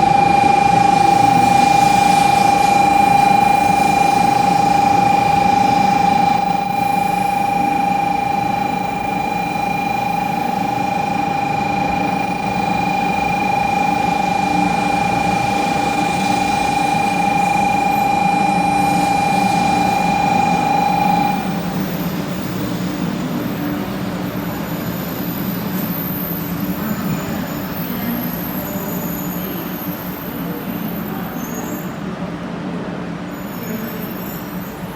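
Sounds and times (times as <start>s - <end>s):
high-pitched tone: 0.0s - 21.7s
rushing noise: 0.0s - 21.9s
train low hum: 0.0s - 34.9s.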